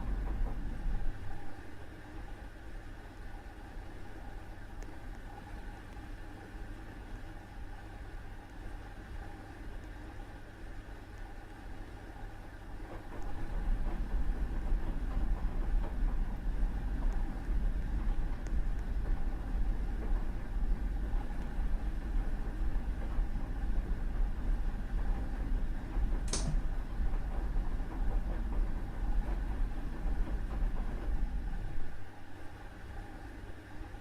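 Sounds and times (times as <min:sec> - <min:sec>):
washing machine running: 0:00.0 - 0:34.0
sharp high-pitched click: 0:26.3 - 0:26.6.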